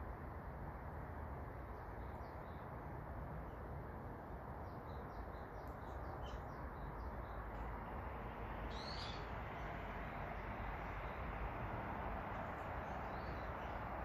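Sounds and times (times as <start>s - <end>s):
small birds chirping: 4.6s - 8.0s, 8.6s - 11.6s, 12.3s - 14.0s.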